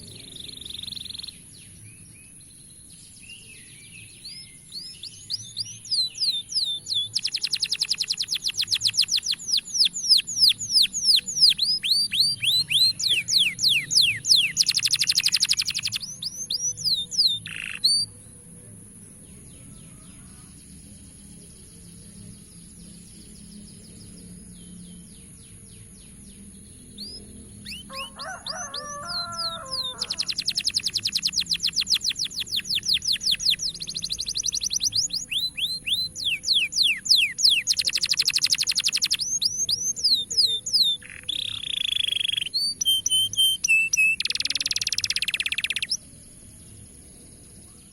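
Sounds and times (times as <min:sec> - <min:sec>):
canary singing: 0:00.0 - 0:01.5, 0:03.5 - 0:18.2, 0:26.1 - 0:46.1.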